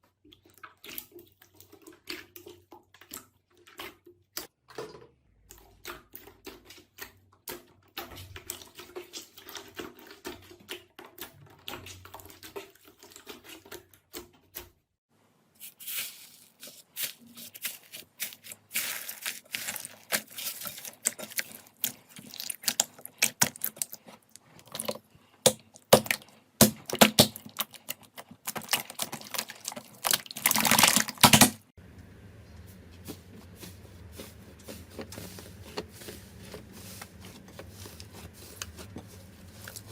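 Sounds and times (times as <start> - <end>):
slime crackling and popping: 15.8 - 24.0, 25.4 - 31.5.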